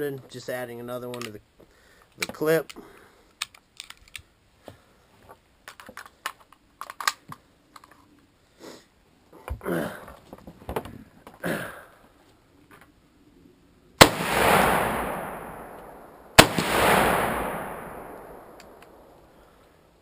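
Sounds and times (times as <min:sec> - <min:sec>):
cartridge clicking into magazine: 0:03.4 - 0:04.3, 0:05.7 - 0:07.2.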